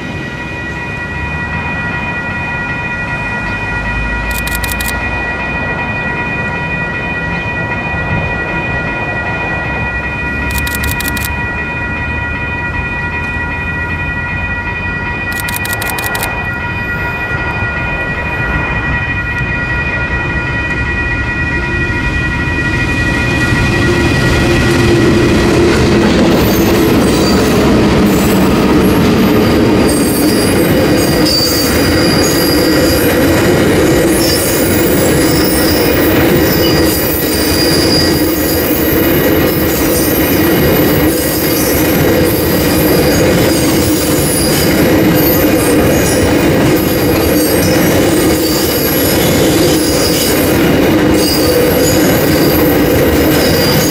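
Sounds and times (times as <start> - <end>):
locomotives passing: 0.0 - 53.9
wagons rolling with wheel squeal: 29.2 - 33.3, 34.1 - 53.9.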